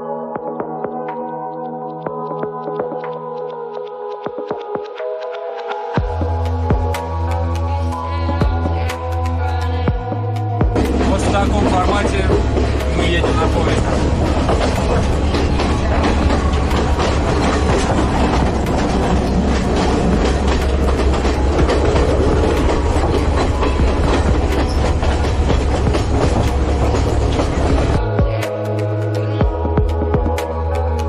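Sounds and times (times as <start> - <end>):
music: 0.0 - 31.0
train rumble: 6.0 - 31.0
wheels clattering over rail joints: 10.7 - 28.0.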